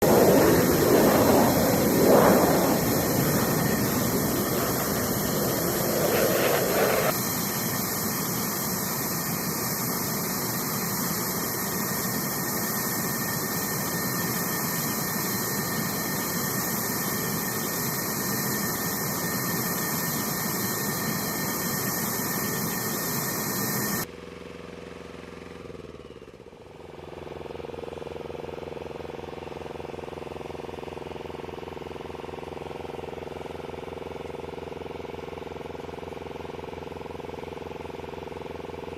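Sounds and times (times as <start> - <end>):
falling tone: 0.0 - 7.2
jet engine rush and whine: 0.0 - 24.1
steady machine hum: 0.0 - 24.1.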